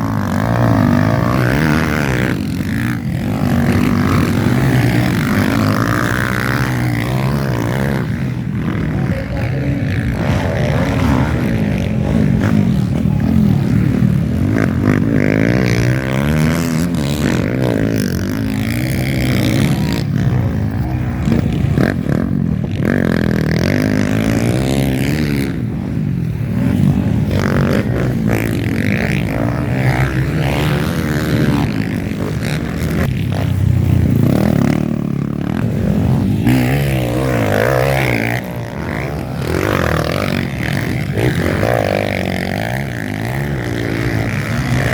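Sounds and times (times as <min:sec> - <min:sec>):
dirt bike engines revving: 0:00.0 - 0:44.9.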